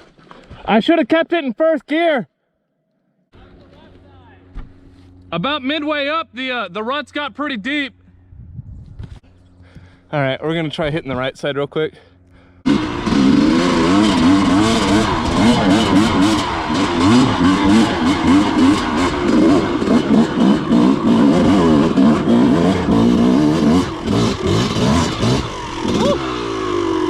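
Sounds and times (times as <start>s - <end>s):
dirt bike engine revving: 12.6s - 27.0s.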